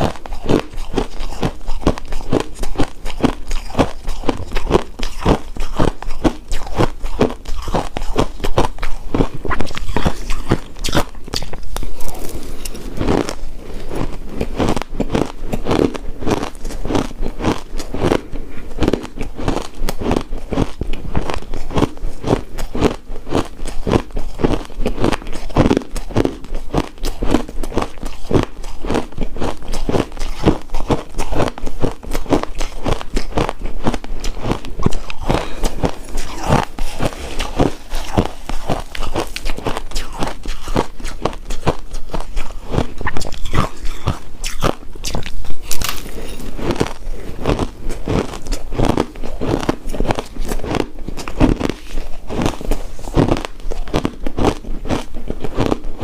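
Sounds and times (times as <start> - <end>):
crunching shaved ice: 0.0 - 56.0.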